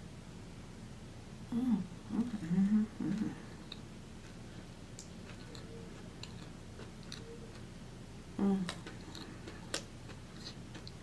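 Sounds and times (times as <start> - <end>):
person humming: 1.5 - 3.6, 8.4 - 8.9
person chewing: 3.1 - 7.8, 8.5 - 11.0.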